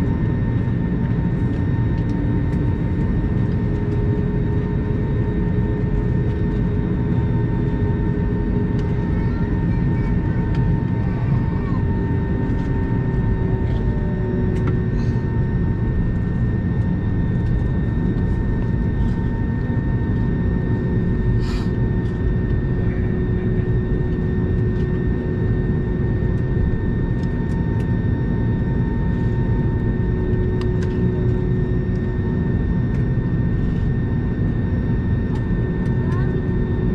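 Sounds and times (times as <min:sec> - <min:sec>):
aircraft cabin rumble: 0:00.0 - 0:36.9.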